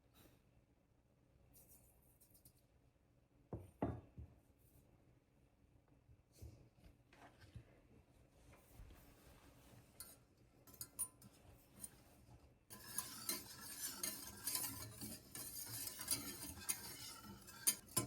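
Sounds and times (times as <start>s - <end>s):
utensil clinking on dishes: 10.0s - 11.4s, 12.7s - 18.0s.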